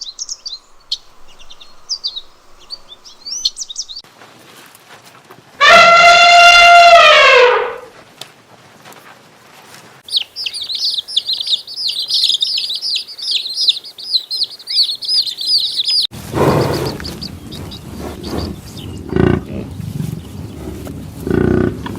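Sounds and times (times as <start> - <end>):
small birds chirping: 0.0 - 4.1, 10.0 - 21.8.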